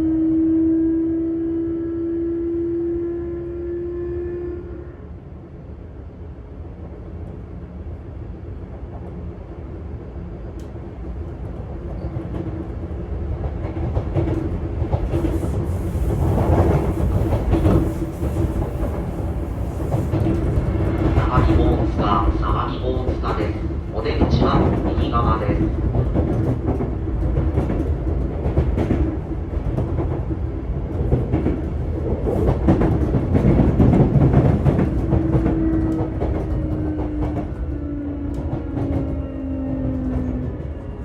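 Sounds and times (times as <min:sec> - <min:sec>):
wheel and track rumble: 0:11.4 - 0:37.7.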